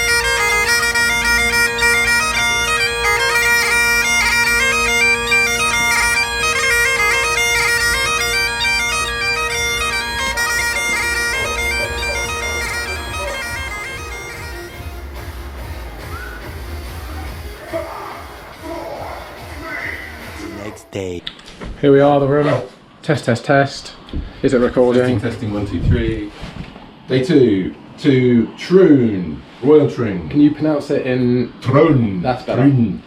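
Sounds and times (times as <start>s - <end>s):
bagpipe music: 0.0s - 17.6s, 19.3s - 20.8s.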